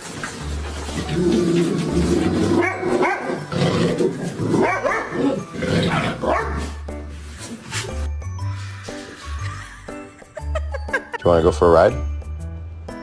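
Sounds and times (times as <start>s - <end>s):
background music: 0.0s - 13.0s
dog barking and yowling: 2.3s - 6.8s.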